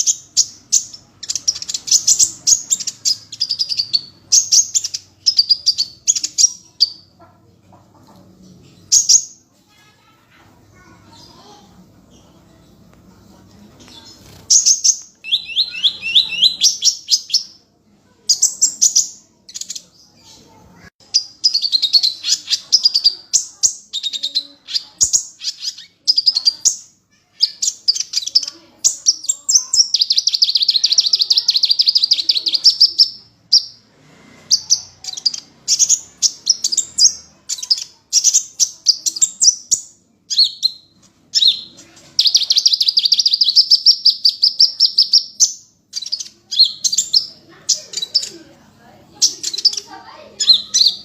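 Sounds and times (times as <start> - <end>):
songbird singing: 0.0 - 7.4, 13.8 - 17.7, 18.3 - 33.9, 34.5 - 51.0
fast bird trills: 14.4 - 17.4.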